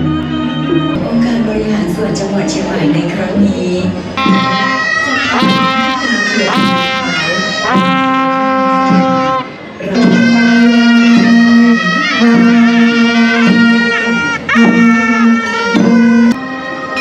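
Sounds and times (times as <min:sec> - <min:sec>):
reedy wind instrument: 0:00.0 - 0:17.0.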